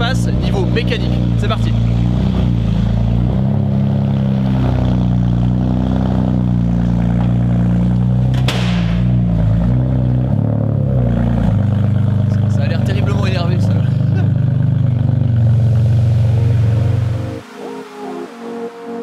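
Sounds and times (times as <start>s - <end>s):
car engine at low revs: 0.0s - 17.5s
sharp knock: 8.3s - 9.2s.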